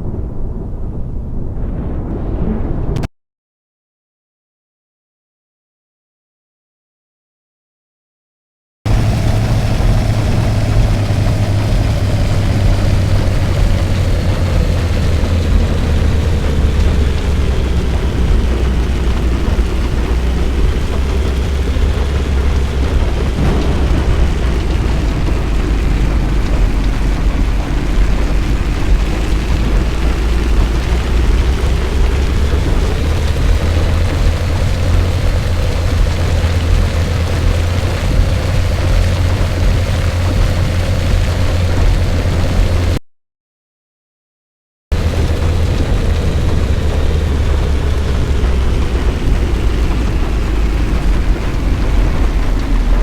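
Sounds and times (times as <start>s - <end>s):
faint whine: 8.9s - 42.8s
car driving low rumble: 8.9s - 43.0s, 44.9s - 53.0s
road and wind noise: 8.9s - 43.0s, 44.9s - 53.0s.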